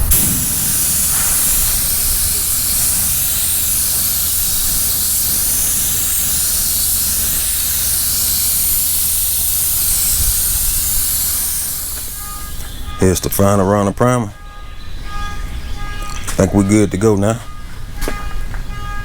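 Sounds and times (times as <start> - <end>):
paint spray gun hissing: 0.0 - 13.0.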